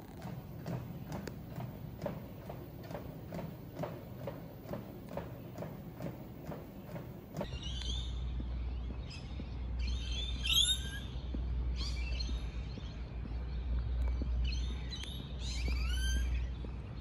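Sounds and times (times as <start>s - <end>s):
steady low rumble: 0.0s - 10.4s
birds chirping: 0.0s - 17.0s.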